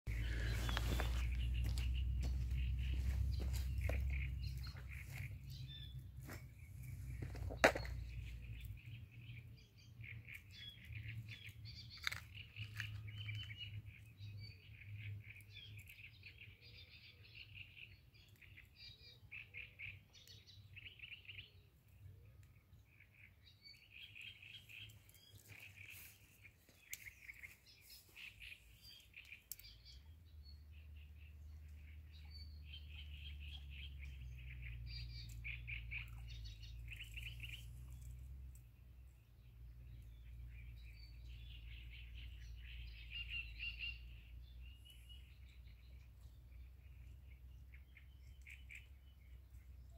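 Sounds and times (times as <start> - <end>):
songbirds chirping: 0.0 - 49.9
faint low rumble: 0.1 - 15.5.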